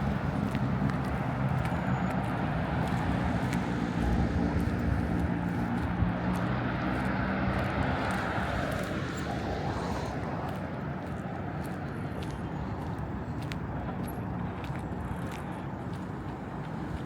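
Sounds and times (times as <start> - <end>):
low mechanical city drone: 0.0 - 17.0.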